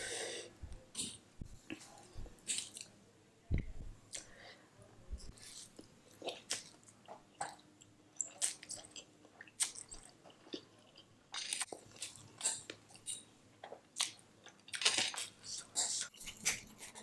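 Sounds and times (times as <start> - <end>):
person chewing noodles: 5.4 - 17.0.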